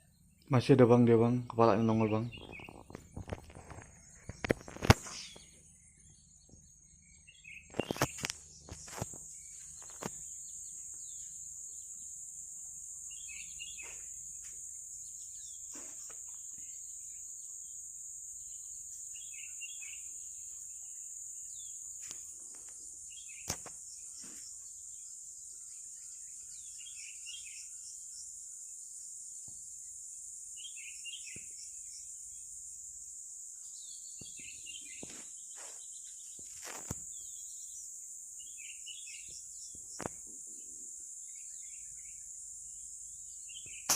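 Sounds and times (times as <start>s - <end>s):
short bird chirps: 2.0s - 6.2s, 43.5s - 43.9s.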